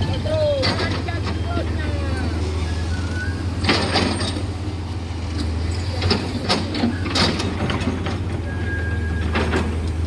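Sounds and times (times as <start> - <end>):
diesel engine hum: 0.0 - 10.0
metallic clanks and knocks: 5.8 - 8.4.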